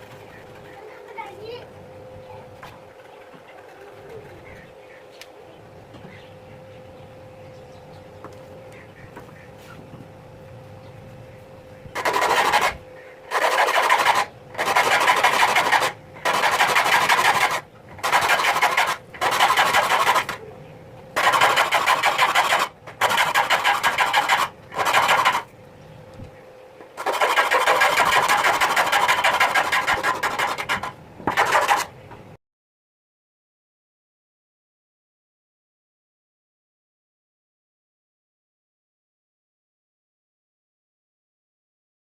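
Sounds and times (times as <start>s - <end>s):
hand saw cutting wood: 12.0s - 20.4s, 21.2s - 25.5s, 27.0s - 31.9s.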